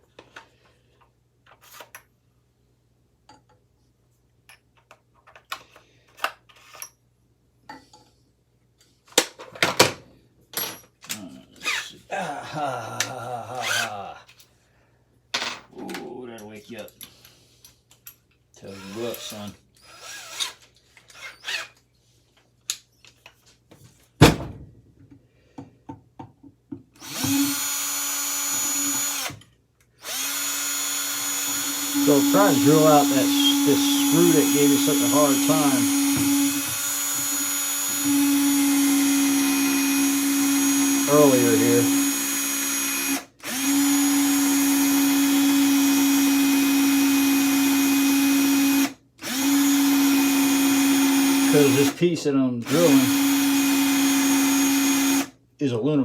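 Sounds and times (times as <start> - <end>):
electric drill running: 13.6 - 13.9, 18.8 - 21.7, 27.0 - 29.4, 30.0 - 52.0, 52.6 - 55.4.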